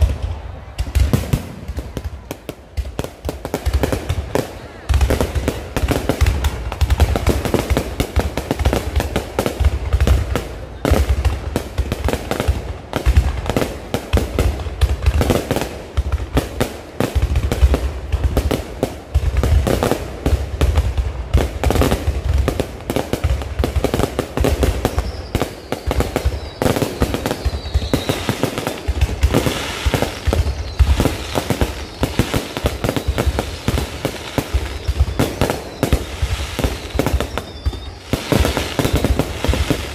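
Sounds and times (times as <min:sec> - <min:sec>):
fireworks bangs and crackles: 0:00.0 - 0:39.9
falling firework whistle: 0:24.4 - 0:39.9.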